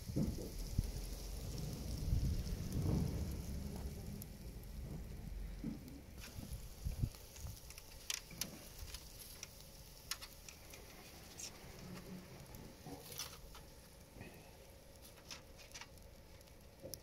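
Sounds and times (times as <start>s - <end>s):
low thumps: 0.0s - 7.6s
fire crackling and popping: 0.0s - 17.0s.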